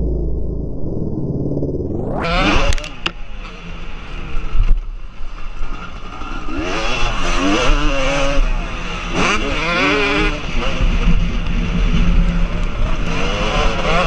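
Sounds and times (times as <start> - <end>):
motocross bike engines revving: 2.2 - 14.0.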